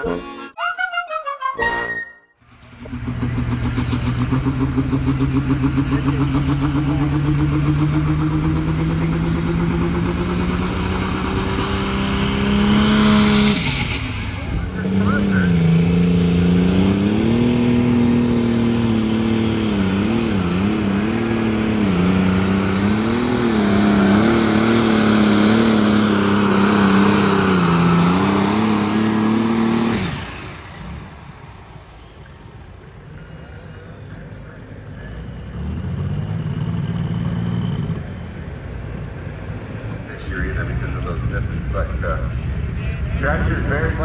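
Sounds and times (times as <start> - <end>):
engine running up: 2.4 - 44.0
tractor engine running hard: 2.4 - 44.0.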